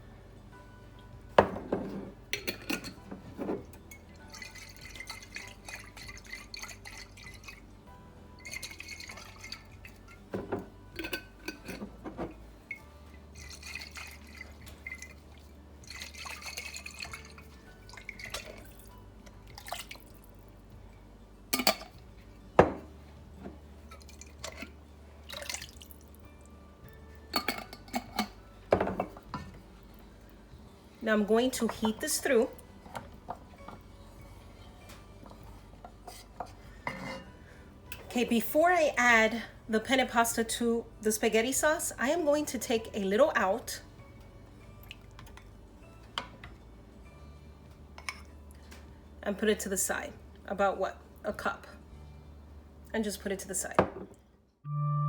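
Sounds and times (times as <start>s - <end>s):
glass jars clinking: 1.4s - 7.6s, 8.4s - 12.8s, 13.4s - 15.2s, 15.9s - 18.8s, 21.6s - 22.9s, 27.3s - 29.5s, 35.2s - 37.4s
liquid sloshing in glass jars: 1.6s - 7.7s, 8.3s - 20.4s, 23.5s - 26.2s, 27.3s - 29.5s
liquid pouring: 13.4s - 18.9s, 19.5s - 20.3s, 25.2s - 26.1s.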